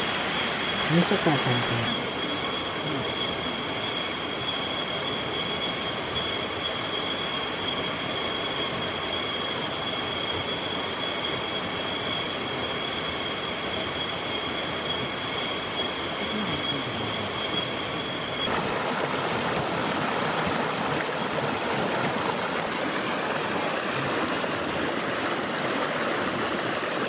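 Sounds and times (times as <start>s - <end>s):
stream rushing over rocks: 18.4s - 27.0s.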